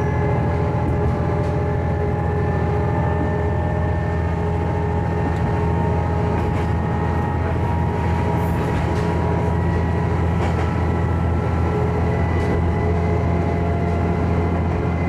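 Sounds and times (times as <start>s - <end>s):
railcar engine drone: 0.0s - 15.0s.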